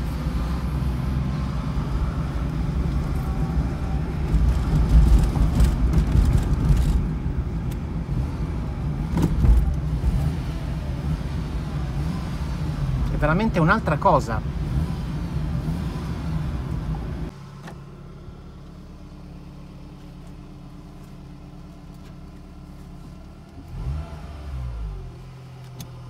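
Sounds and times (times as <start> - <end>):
car engine low hum: 0.0 - 26.0
road and tyre noise: 0.0 - 26.0
soft thumps from road: 9.1 - 9.8.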